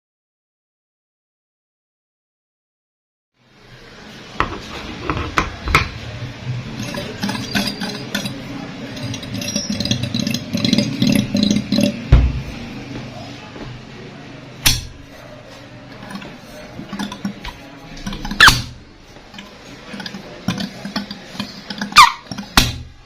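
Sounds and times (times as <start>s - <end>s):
metal compressor clinking and rattling: 6.7s - 12.6s, 15.9s - 22.8s
heavy thump: 12.1s - 13.1s.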